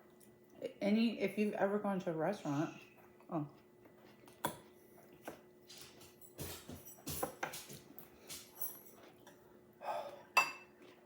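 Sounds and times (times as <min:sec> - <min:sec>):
chewing and mouth noises: 0:02.8 - 0:06.0
cutlery clinking against dishes: 0:06.2 - 0:09.1.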